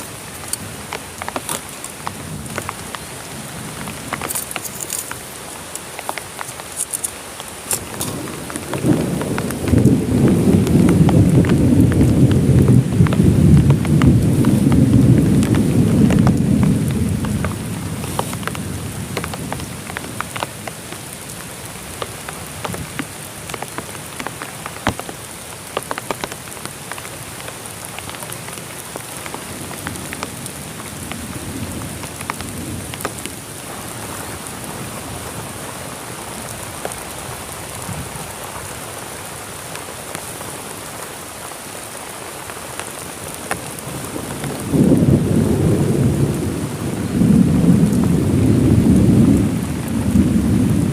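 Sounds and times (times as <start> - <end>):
heavy rain falling: 0.0 - 50.9
loud raindrops ticking: 0.0 - 50.9
low rumble of thunder: 7.9 - 20.3, 43.9 - 50.9.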